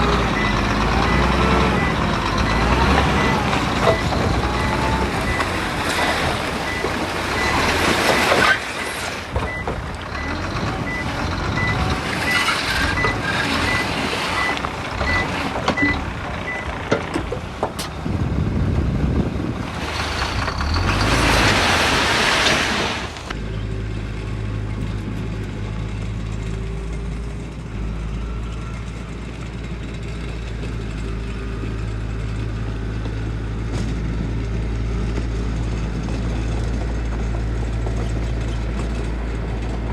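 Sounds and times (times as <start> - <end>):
diesel engine idling: 0.0 - 8.2, 9.2 - 21.1
construction vehicle working: 0.0 - 39.9
reversing alarm beeping: 0.2 - 8.3, 9.5 - 16.7.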